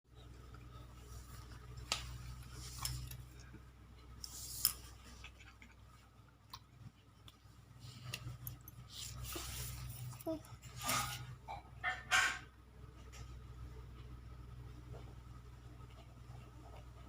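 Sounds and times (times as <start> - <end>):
low steady hum: 0.1 - 17.0
cat crunching and chewing: 0.3 - 10.2.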